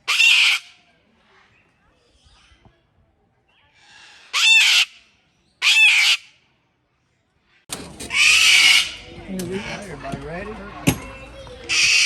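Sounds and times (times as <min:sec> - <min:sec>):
parrot screeching: 0:00.1 - 0:00.6, 0:04.3 - 0:04.9, 0:05.6 - 0:06.2, 0:08.1 - 0:09.0, 0:11.7 - 0:12.0.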